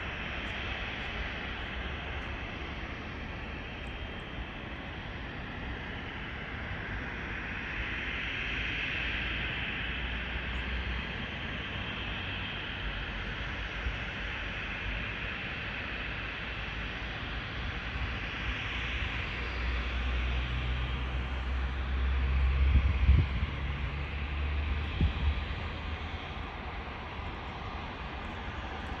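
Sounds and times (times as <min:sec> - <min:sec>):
jet engines at takeoff power: 0:00.0 - 0:29.0.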